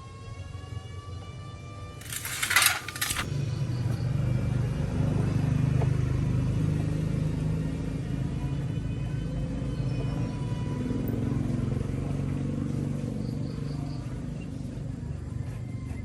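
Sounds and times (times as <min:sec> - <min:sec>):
loud metallic clatter: 0:02.0 - 0:03.3.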